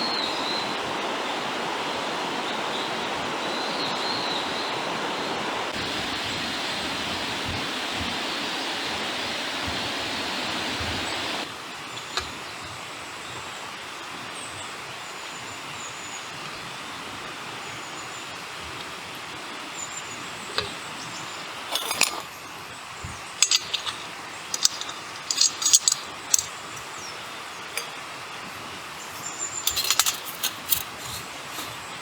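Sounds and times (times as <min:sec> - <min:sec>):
small hard objects clinking: 0:21.6 - 0:22.5, 0:23.4 - 0:28.1, 0:28.9 - 0:31.9.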